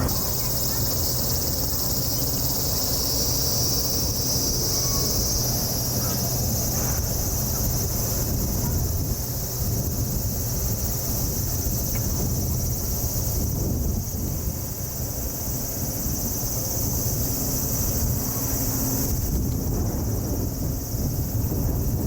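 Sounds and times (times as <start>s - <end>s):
insects chirring: 0.0s - 22.0s
wind rumbling on microphone: 0.0s - 22.0s.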